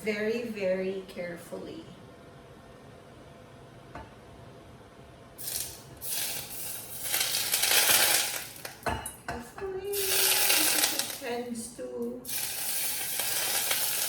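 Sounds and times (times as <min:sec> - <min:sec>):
hot oil sizzling and crackling: 0:05.4 - 0:09.1, 0:09.9 - 0:11.4, 0:12.2 - 0:14.0.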